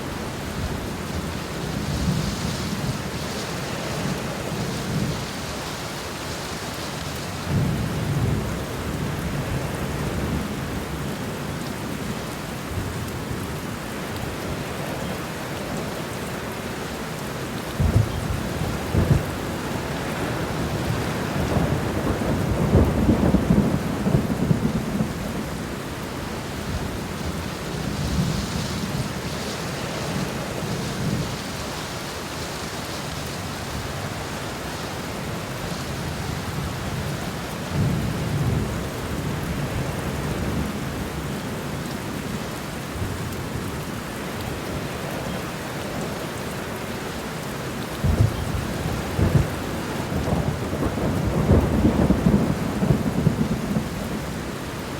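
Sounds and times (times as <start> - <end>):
steady rain falling: 0.0 - 54.9
thunder rumbling: 17.8 - 25.7, 48.0 - 54.8.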